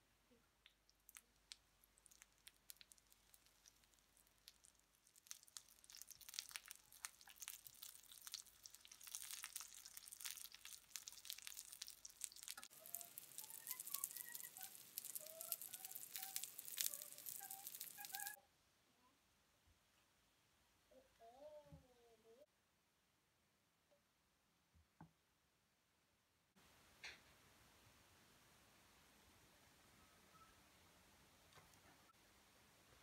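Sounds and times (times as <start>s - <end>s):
cutlets sizzling in hot oil: 2.0s - 18.4s
high squeaky chirps: 12.6s - 18.4s.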